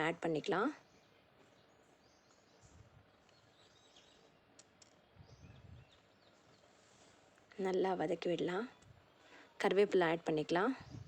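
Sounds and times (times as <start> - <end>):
faint clicks: 4.5 - 5.0.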